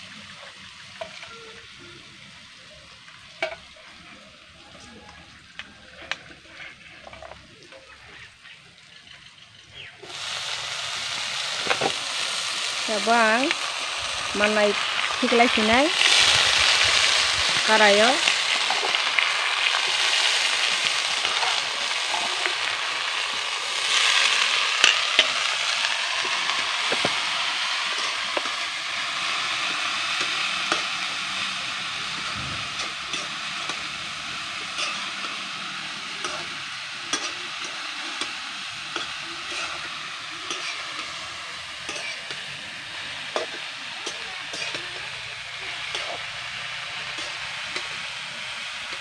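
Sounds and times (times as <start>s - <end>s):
food sizzling in hot oil: 0.0s - 49.0s
metal ladle scraping a wok: 18.3s - 49.0s.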